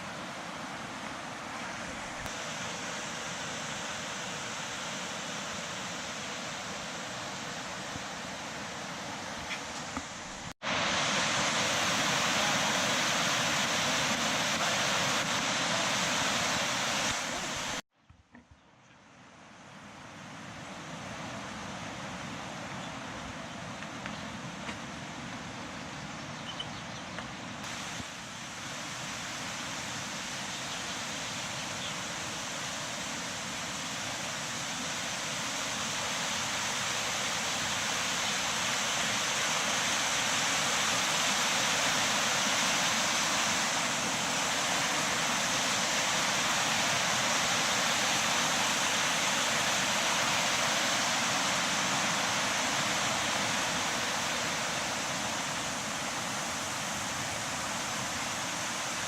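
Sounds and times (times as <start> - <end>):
waterfall rushing: 0.0 - 17.8, 27.6 - 59.0.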